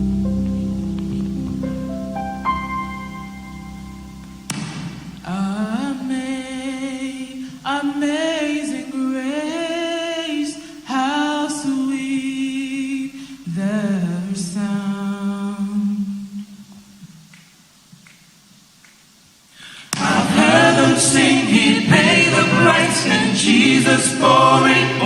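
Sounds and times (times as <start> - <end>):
choir singing a cappella: 5.2 - 16.2, 19.8 - 25.0.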